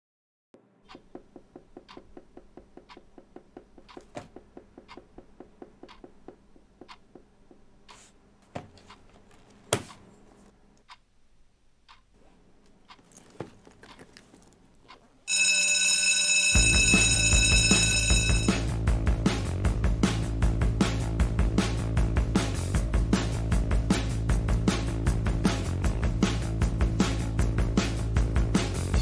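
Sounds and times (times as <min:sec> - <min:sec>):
loud ringing alarm: 0:15.3 - 0:18.7.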